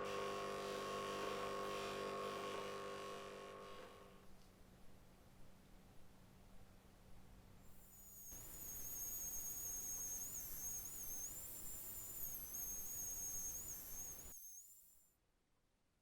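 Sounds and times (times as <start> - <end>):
high-pitched electronic whine: 7.7 - 15.1.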